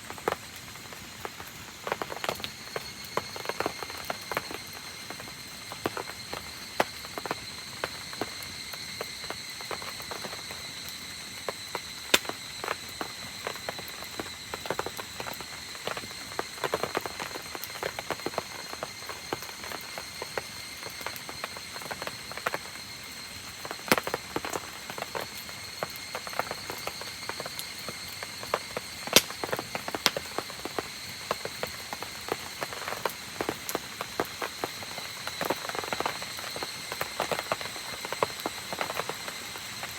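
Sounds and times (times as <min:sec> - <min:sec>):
rain on campfire: 0:00.0 - 0:39.9
fire pops and ticks: 0:00.1 - 0:22.6, 0:23.6 - 0:39.4.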